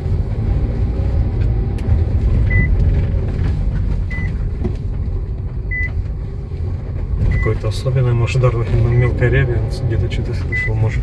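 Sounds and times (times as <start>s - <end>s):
road rumble inside car: 0.0s - 11.0s.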